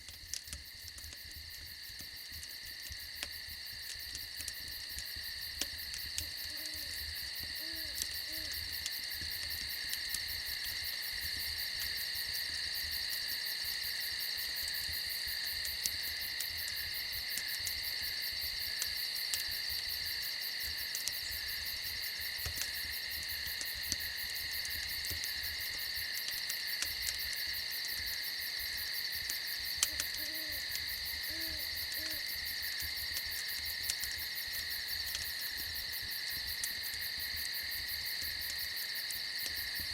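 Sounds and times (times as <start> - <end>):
campfire crackling: 0.0 - 39.9
crickets chirring: 0.0 - 39.9
owl hooting: 29.9 - 30.6, 31.3 - 32.2.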